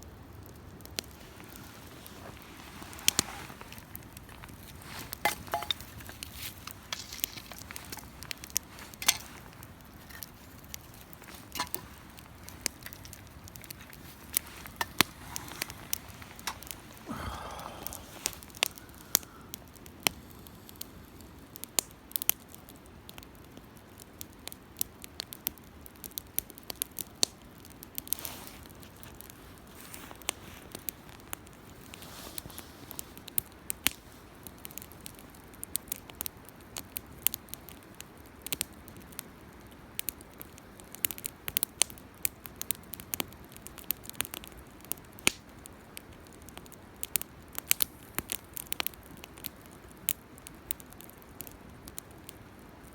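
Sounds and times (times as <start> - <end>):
wood fire crackling: 0.0 - 52.9
flame rushing: 0.8 - 22.3.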